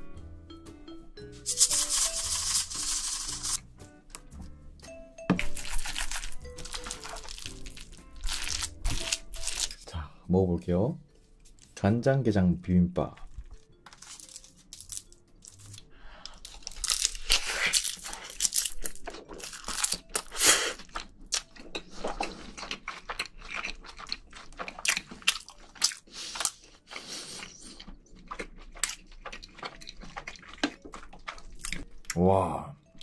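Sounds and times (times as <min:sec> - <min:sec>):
wet chewing and mouth clicks: 0:05.4 - 0:09.8, 0:13.2 - 0:32.2.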